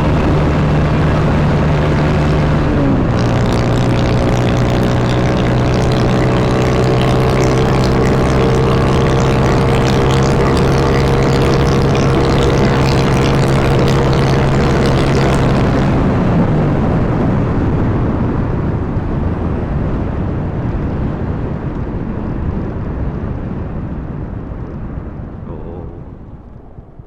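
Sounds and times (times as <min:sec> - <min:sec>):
motorcycle engine running: 0:00.0 - 0:17.5
wind rush on microphone: 0:00.0 - 0:27.0.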